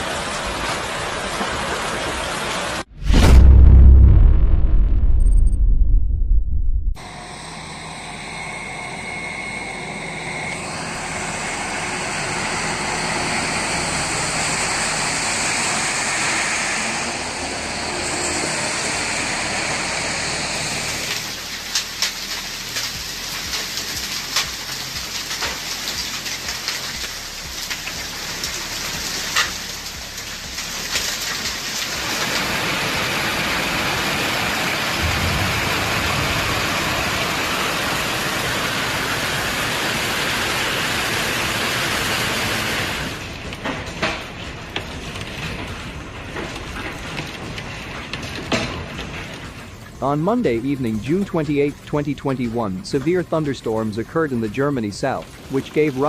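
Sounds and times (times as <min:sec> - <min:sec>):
heavy rain and hail: 0:00.0 - 0:04.4, 0:11.1 - 0:56.0
hailstones ticking and knocking: 0:20.9 - 0:56.0.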